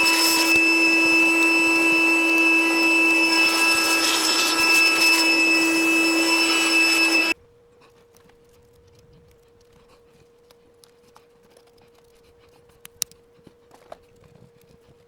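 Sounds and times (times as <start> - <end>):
hair dryer blowing: 0.0 - 7.4.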